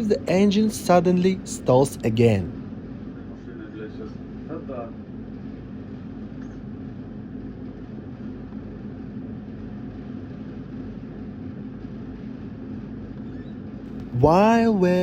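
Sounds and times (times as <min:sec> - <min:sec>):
diesel engine droning: 0:00.0 - 0:02.5, 0:14.1 - 0:15.0.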